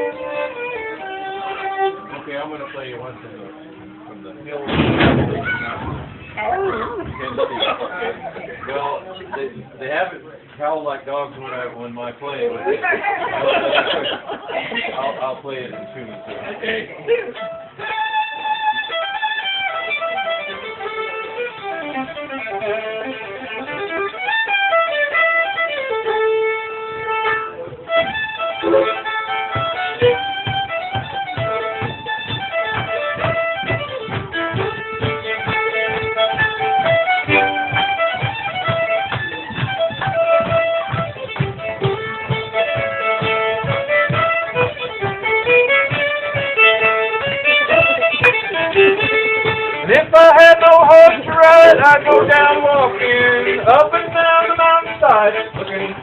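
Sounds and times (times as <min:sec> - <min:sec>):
fiddle playing lively tune: 0:00.0 - 0:56.0
steady low beat: 0:17.6 - 0:56.0.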